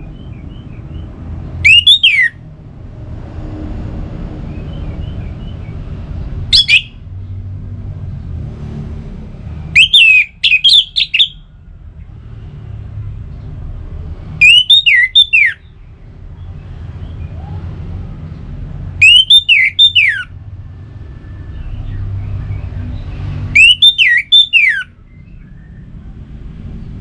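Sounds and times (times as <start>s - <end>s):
thrush singing whistled phrases: 1.6s - 2.4s, 6.5s - 7.0s, 9.8s - 11.5s, 14.4s - 15.7s, 19.0s - 20.3s, 23.5s - 25.9s.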